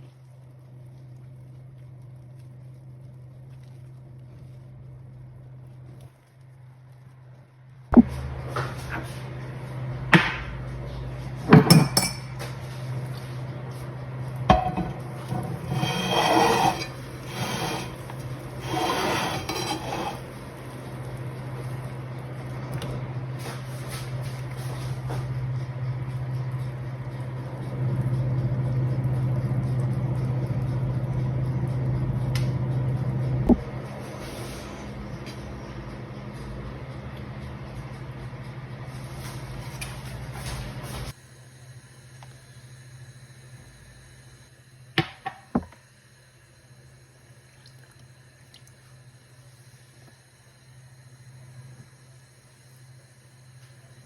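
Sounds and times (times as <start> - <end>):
steady low hum: 0.0 - 54.0
glass and dishes clinking: 11.5 - 12.5, 14.5 - 17.0.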